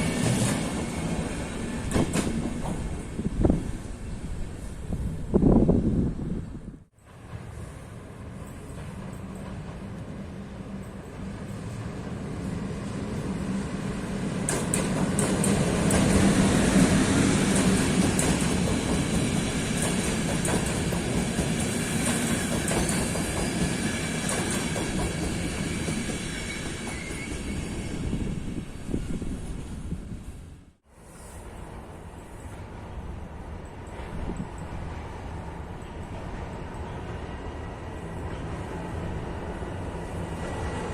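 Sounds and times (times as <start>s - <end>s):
train passing: 0.0s - 40.9s
wheels clacking over rail joints: 14.4s - 27.3s
wheel squeal: 25.7s - 28.2s.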